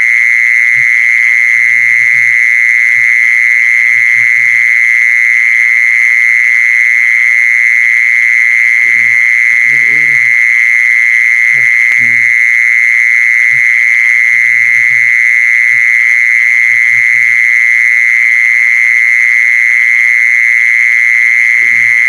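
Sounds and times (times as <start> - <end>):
high-pitched trilling tone: 8.8 - 10.3, 21.6 - 22.0
short low croaks: 8.8 - 10.4, 21.5 - 22.0.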